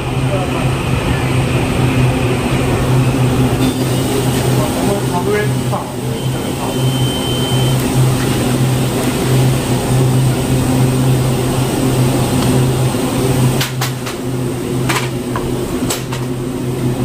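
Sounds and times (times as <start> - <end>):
train low hum and rumble: 0.0 - 17.0
brief high tone: 6.0 - 7.8.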